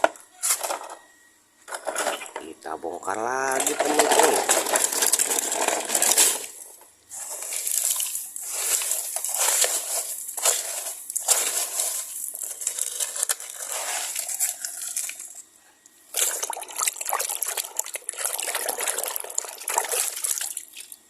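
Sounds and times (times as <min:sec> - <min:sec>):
hands scraping wet sand: 0:05.3 - 0:15.0.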